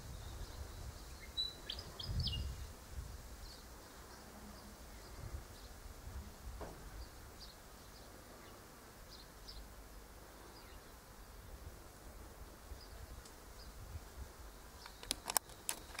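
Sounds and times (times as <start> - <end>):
faint high bird chirps: 0.0 - 2.7
sharp clicks: 14.8 - 16.0.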